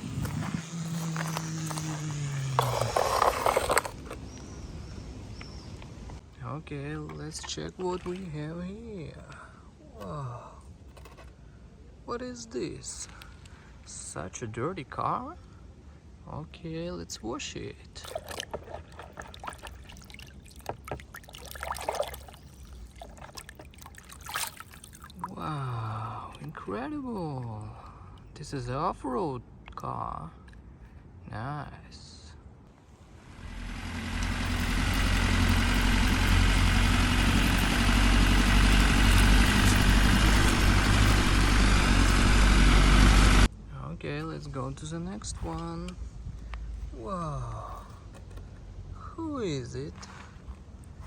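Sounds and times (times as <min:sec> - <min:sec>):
water splashing and dribbling: 0:18.0 - 0:25.8
vehicle engine idling: 0:33.1 - 0:43.5.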